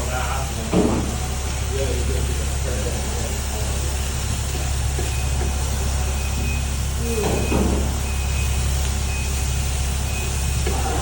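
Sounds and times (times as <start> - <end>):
loud low machine hum: 0.0 - 11.0
faint high beeps: 6.0 - 11.0.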